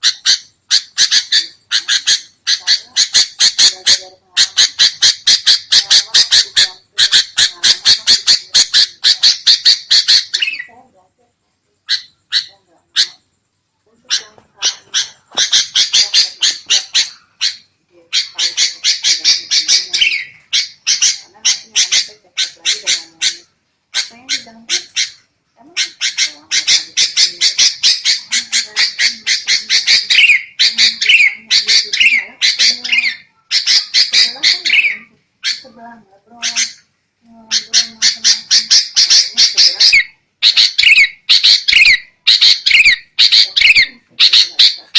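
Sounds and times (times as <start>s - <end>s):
bird harsh scolding calls: 0.0s - 10.8s, 11.9s - 13.2s, 14.0s - 36.9s, 37.5s - 44.9s.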